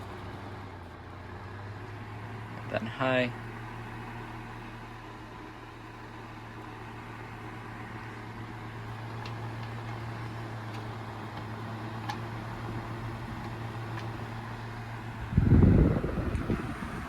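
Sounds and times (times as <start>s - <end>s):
fan motor hum: 0.0s - 17.0s
wind rumble from fan airflow: 12.6s - 17.0s.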